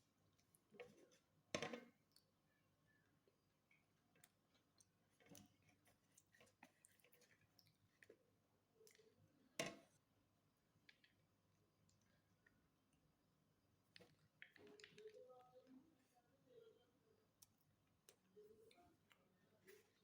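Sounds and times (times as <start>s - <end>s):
soft eating clicks: 3.7s - 9.3s, 13.8s - 15.8s, 17.3s - 20.0s.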